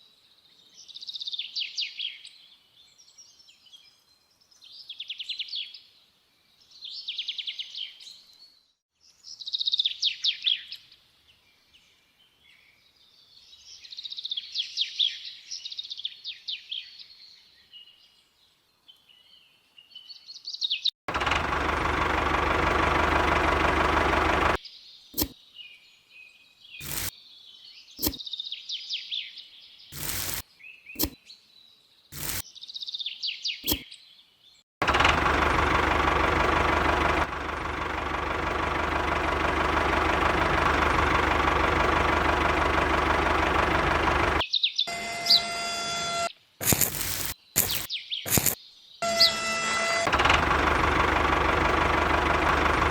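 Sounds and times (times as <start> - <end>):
small motor running: 21.1 - 24.6, 26.8 - 27.1, 30.0 - 30.4, 32.2 - 32.4, 34.8 - 52.9
birds chirping: 34.8 - 52.9.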